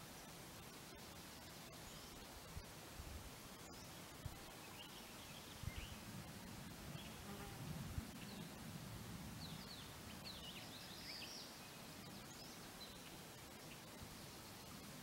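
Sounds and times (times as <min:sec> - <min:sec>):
faint outdoor hiss: 0:00.0 - 0:15.0
small birds chirping: 0:03.5 - 0:06.1, 0:09.4 - 0:15.0.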